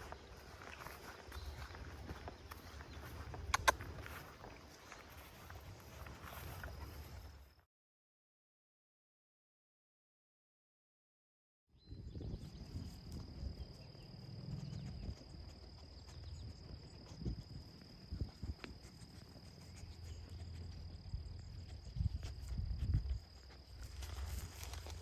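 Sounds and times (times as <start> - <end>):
cricket trilling: 0.0 - 7.5, 11.8 - 25.0
soft footsteps: 0.0 - 7.5
low rumbling wind: 11.8 - 18.8, 20.2 - 25.0.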